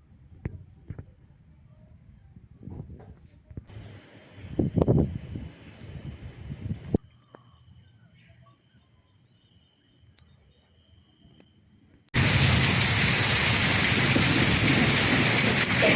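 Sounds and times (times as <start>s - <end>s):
night insects trilling: 0.0s - 15.9s
heavy rain pouring: 12.2s - 15.9s.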